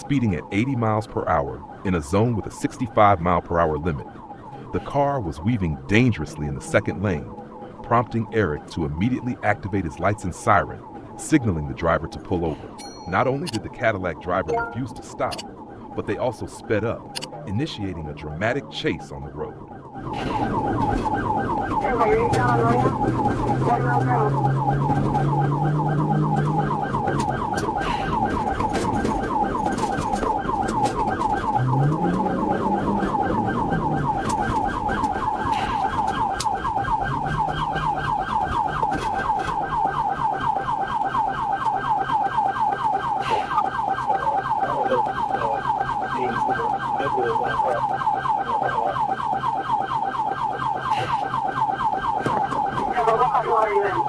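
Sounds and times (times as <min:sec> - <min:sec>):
police siren yelping: 0:00.0 - 0:54.0.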